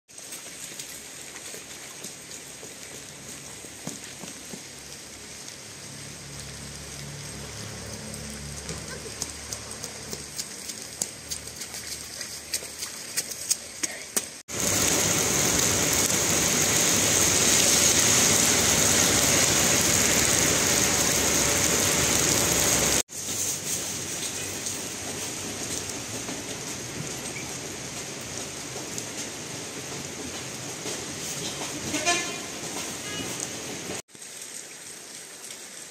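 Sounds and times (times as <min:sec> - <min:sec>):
heavy rain: 0:00.1 - 0:11.2, 0:14.4 - 0:35.9
raindrops clicking on surface: 0:00.1 - 0:16.8, 0:23.9 - 0:31.8.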